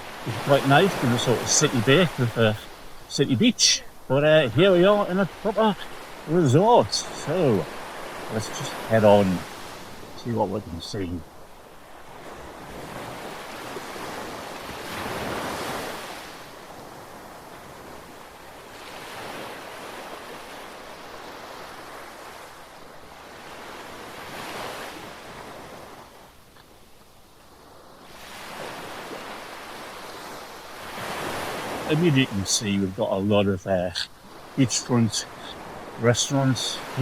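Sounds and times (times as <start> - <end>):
surf breaking on beach: 0.0 - 11.2, 28.0 - 37.0.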